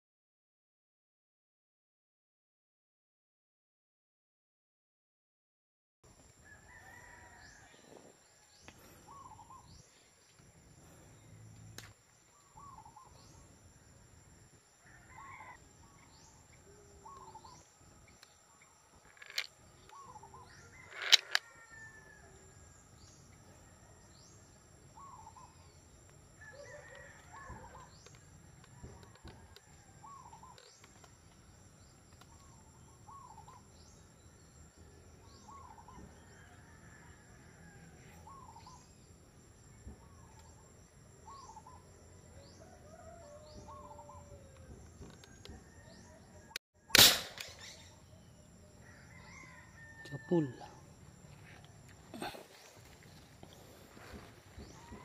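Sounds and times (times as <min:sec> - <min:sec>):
wild birds calling: 0:08.6 - 0:14.0, 0:14.8 - 0:22.2, 0:24.2 - 0:31.1, 0:32.1 - 0:34.5, 0:35.2 - 0:38.9, 0:41.2 - 0:41.9, 0:42.9 - 0:44.8, 0:47.3 - 0:55.0
sharp clicks: 0:47.0 - 0:47.8.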